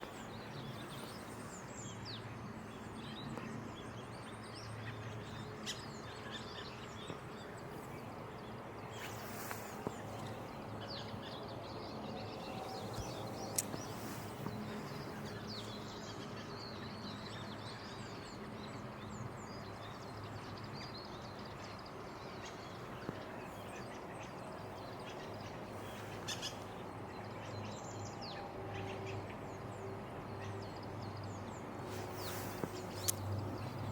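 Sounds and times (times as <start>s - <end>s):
birds chirping: 4.2s - 17.4s, 31.2s - 33.9s.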